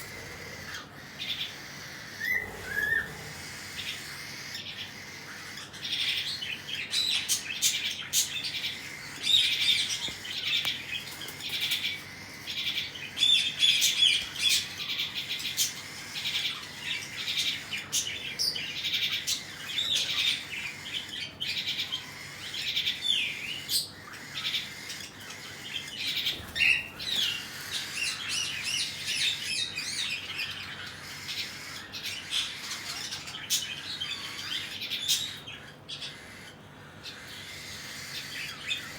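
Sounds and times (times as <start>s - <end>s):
cockatiels chirping: 0.0s - 38.9s.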